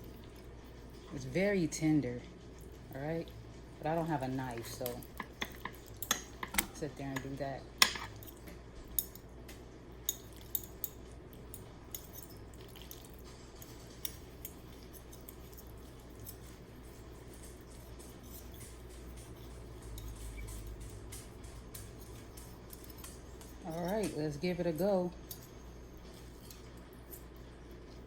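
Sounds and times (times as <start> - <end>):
fork clicking against plate: 4.6 - 9.2, 10.0 - 24.2.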